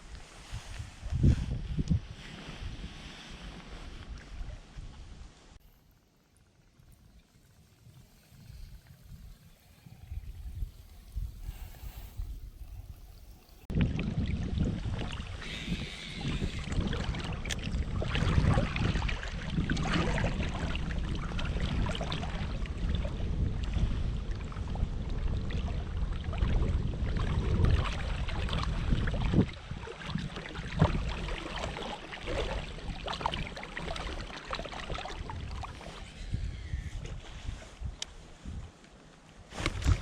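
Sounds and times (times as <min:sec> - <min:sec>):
wind rumbling on microphone: 0:00.0 - 0:05.7, 0:06.4 - 0:40.0
water lapping: 0:02.0 - 0:40.0
small splashes and knocks against boat: 0:27.2 - 0:36.0.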